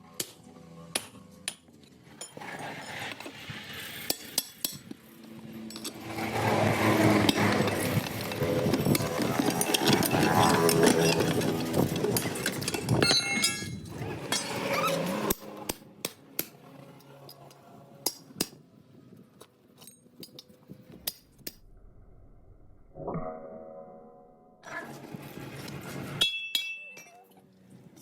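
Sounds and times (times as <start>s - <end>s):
metal clinks and knocks: 7.6s - 14.6s.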